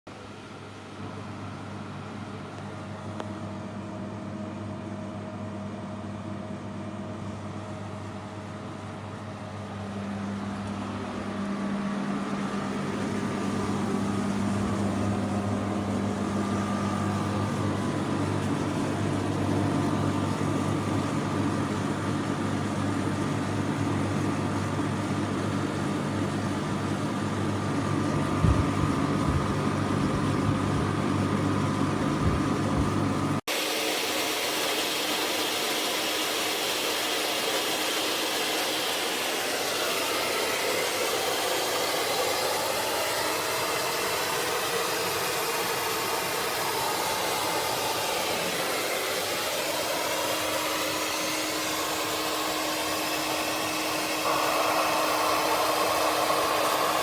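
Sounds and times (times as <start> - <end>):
air conditioner humming: 0.1 - 33.6, 39.2 - 57.0.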